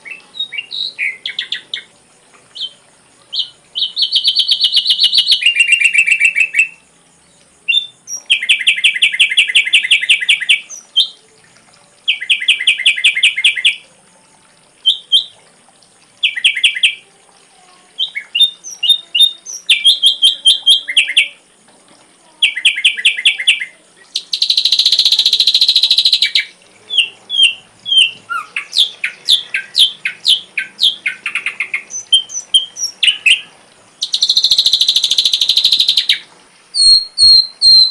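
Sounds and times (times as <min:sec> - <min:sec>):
bird trills and whistles: 0:07.7 - 0:11.2, 0:18.0 - 0:21.4, 0:22.4 - 0:36.2, 0:36.8 - 0:37.9
faint steady high tone: 0:16.2 - 0:28.6.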